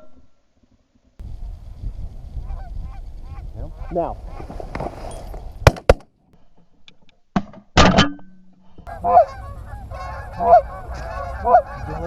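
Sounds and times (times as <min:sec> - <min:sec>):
geese honking: 0:02.4 - 0:04.6, 0:08.9 - 0:12.0
shotgun blasts: 0:05.6 - 0:06.1.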